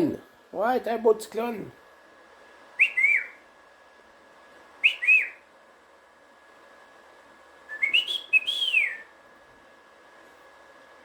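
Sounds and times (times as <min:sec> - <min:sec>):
cockatiel whistling: 0:02.8 - 0:03.4, 0:04.8 - 0:05.4, 0:07.7 - 0:09.1.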